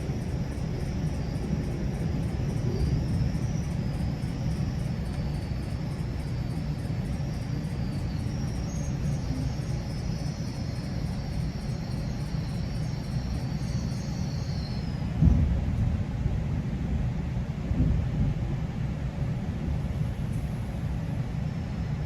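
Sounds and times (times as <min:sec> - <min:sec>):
faint high whine: 0:00.0 - 0:15.9
train rumbling: 0:00.0 - 0:22.0.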